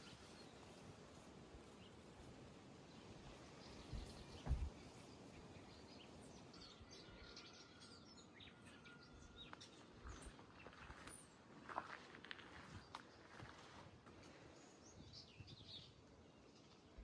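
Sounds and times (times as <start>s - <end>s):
small birds chirping: 0.0s - 17.0s
low thump: 4.0s - 4.7s.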